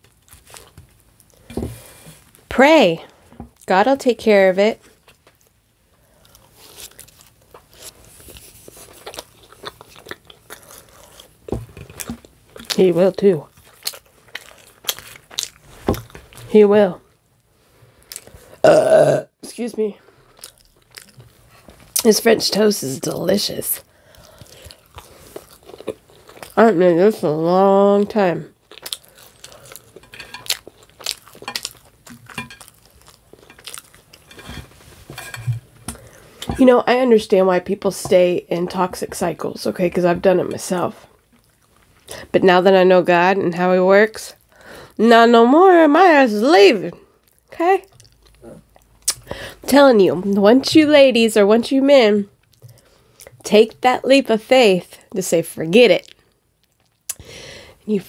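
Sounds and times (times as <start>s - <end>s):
person chewing crunchy food: 0.0s - 2.4s, 5.0s - 12.8s, 13.5s - 16.5s, 18.0s - 18.6s, 20.1s - 22.0s, 23.9s - 26.6s, 28.5s - 36.6s, 41.1s - 42.2s, 47.1s - 49.7s, 52.4s - 53.4s.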